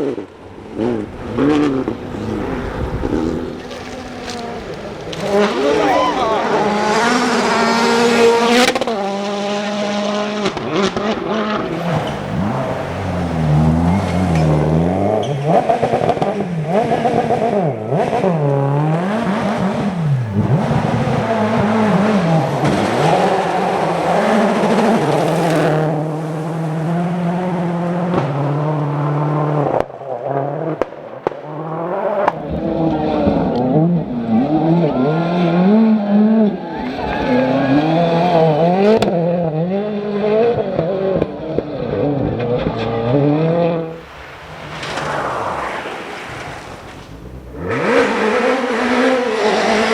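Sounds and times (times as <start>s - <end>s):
rally car engines revving: 0.0s - 49.9s
tyre noise: 0.8s - 33.5s.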